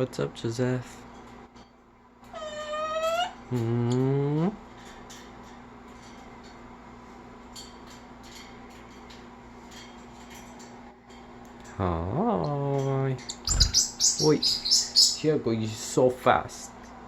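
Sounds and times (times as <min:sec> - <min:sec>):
steady low hum: 0:03.4 - 0:17.0.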